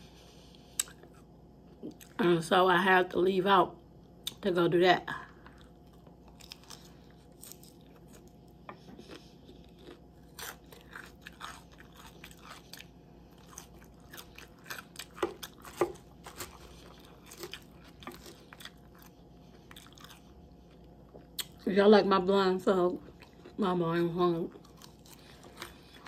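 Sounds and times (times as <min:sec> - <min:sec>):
chewing crunchy lettuce: 0:05.2 - 0:21.7, 0:22.6 - 0:26.0.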